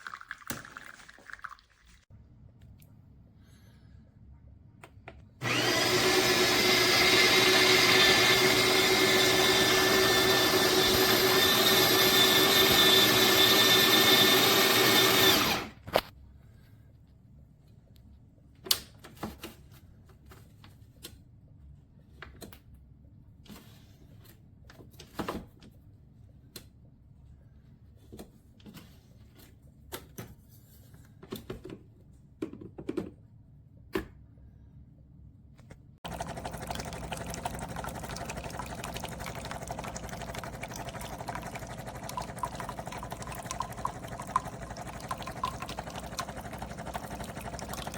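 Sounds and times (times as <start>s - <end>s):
coffee grinder running: 5.4s - 15.8s, 36.0s - 47.9s.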